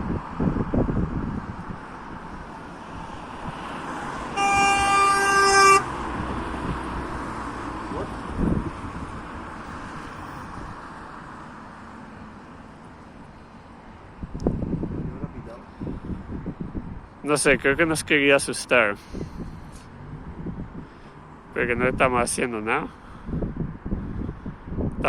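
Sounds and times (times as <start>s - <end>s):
passing vehicle rumble: 0.0s - 25.0s
horn blast: 4.3s - 6.0s.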